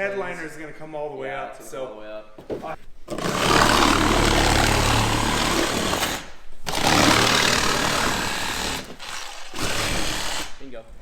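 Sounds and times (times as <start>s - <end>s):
reciprocating saw cutting sheet metal: 3.1s - 10.6s.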